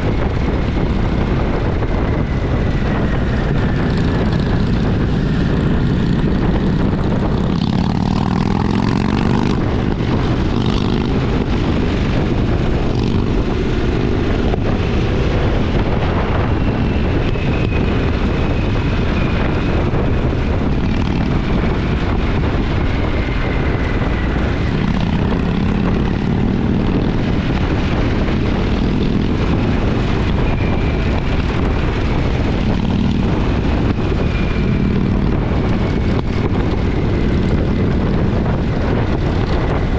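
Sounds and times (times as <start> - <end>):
heavy wind noise: 0.0 - 39.9
motorcycle engine running: 0.0 - 39.9.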